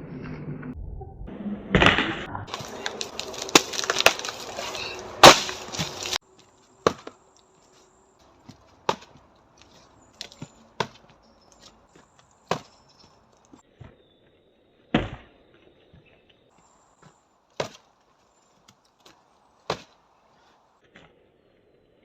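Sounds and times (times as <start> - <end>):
dead wood cracking and splintering: 2.5 - 13.9
strikes knocking on tree trunk: 5.2 - 6.2, 6.8 - 7.2, 12.5 - 12.8.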